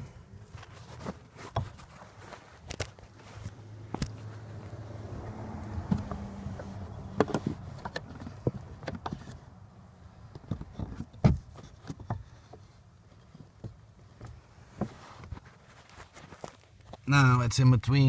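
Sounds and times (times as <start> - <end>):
wood knocking and clicking: 10.3 - 15.0.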